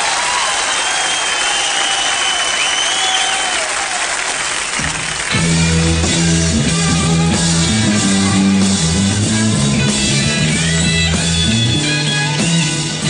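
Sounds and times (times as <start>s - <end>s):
drum kit: 4.7s - 13.0s
bass guitar: 4.8s - 13.0s
electric guitar: 4.8s - 13.0s.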